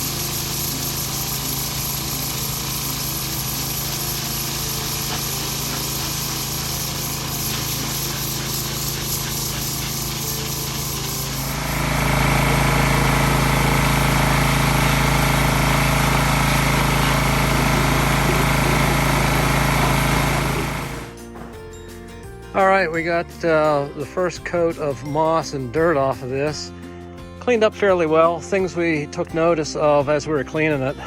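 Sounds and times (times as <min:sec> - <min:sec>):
hiss of water jet: 0:00.0 - 0:21.1
pressure washer running: 0:00.0 - 0:21.2.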